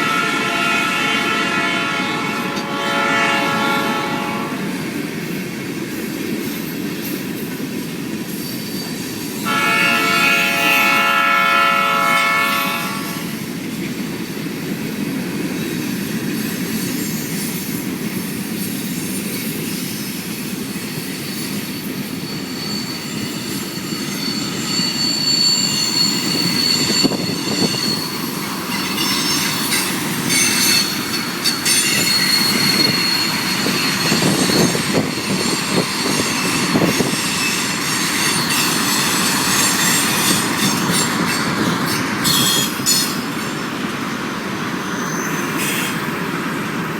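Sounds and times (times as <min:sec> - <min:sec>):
train horn: 0:00.0 - 0:04.8, 0:09.4 - 0:13.3
freight train rumble: 0:00.0 - 0:46.9
high thin wheel squeal: 0:08.3 - 0:13.4, 0:18.6 - 0:46.2
train wheel clicks: 0:27.9 - 0:44.0.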